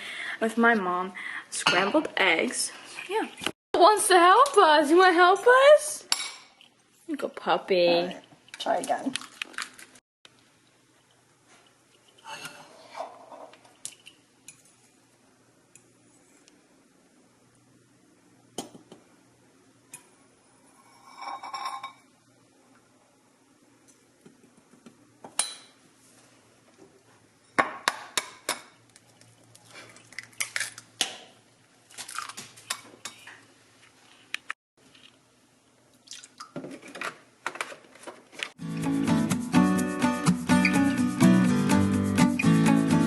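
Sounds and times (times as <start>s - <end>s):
dishes and cutlery clinking: 1.6s - 2.0s, 20.8s - 22.1s.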